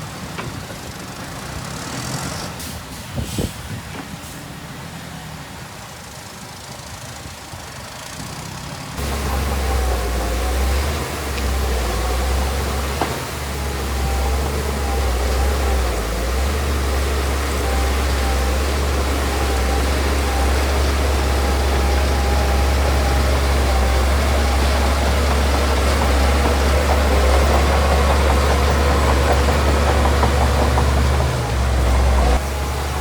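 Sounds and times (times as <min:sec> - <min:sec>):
diesel engine rumbling: 0:08.8 - 0:33.0.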